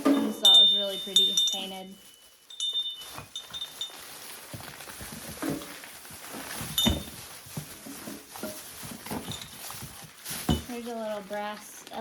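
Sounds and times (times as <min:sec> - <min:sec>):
bell clinking when handled: 0:00.2 - 0:04.2.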